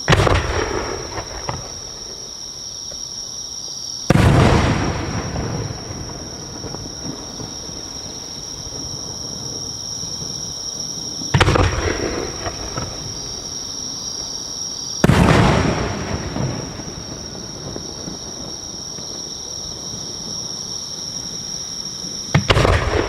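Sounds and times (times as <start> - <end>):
firework shell booms echoing: 0.1 - 2.2, 4.1 - 7.8, 11.3 - 13.5, 15.0 - 18.6, 22.3 - 23.0.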